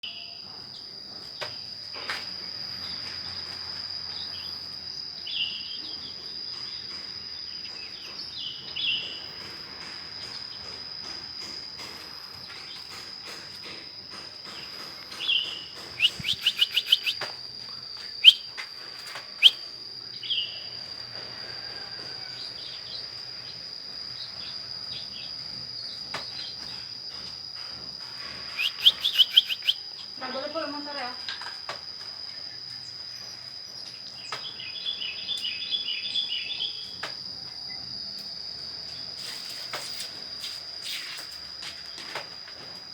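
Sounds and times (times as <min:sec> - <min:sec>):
high insect drone: 0:00.0 - 0:42.9
bird chirping: 0:14.5 - 0:17.3, 0:18.2 - 0:18.5, 0:19.4 - 0:19.6, 0:28.5 - 0:29.8
bird rattling call: 0:14.5 - 0:17.3, 0:18.2 - 0:18.5, 0:28.4 - 0:29.8.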